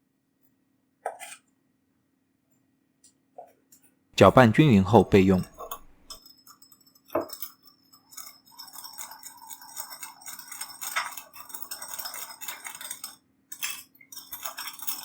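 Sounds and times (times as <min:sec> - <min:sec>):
spoon clinking in a bowl: 0:04.4 - 0:15.0.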